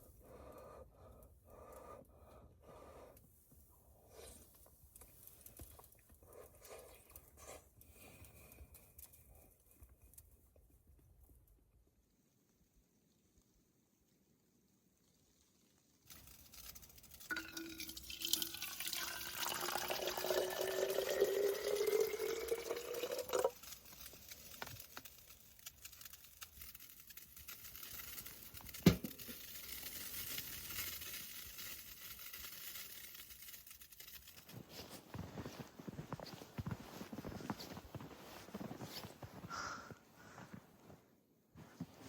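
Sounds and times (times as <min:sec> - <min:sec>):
liquid pouring into container: 0:16.1 - 0:34.7.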